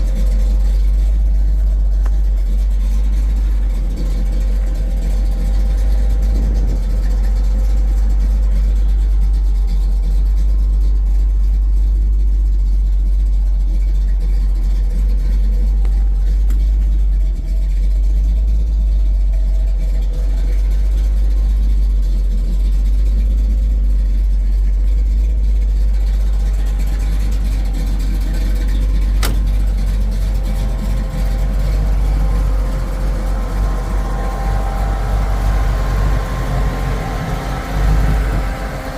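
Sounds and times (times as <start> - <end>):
car engine running: 0.0 - 38.9
sharp click: 29.2 - 29.5.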